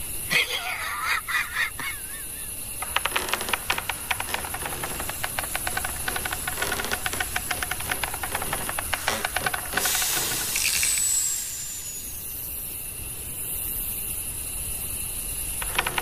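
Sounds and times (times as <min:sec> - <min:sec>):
steady high hiss: 0:00.0 - 0:16.0
rapid clicking and crackling: 0:02.8 - 0:10.6, 0:15.6 - 0:16.0.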